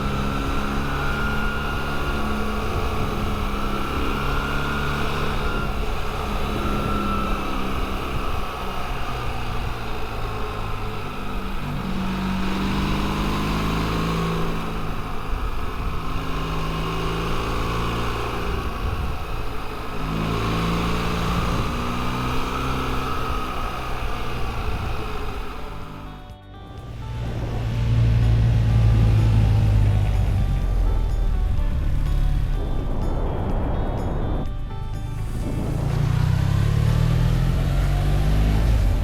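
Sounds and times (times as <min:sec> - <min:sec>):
motorcycle engine revving: 0:00.0 - 0:39.0
wind rush over microphone: 0:18.4 - 0:19.6, 0:27.0 - 0:39.0.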